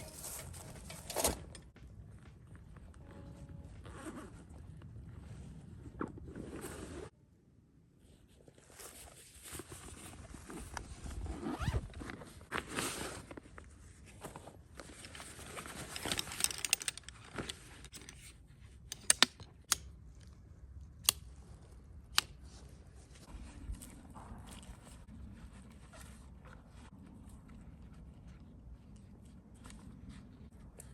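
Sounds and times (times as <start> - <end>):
handling rustling and scraping: 0.0 - 1.8, 8.2 - 19.7.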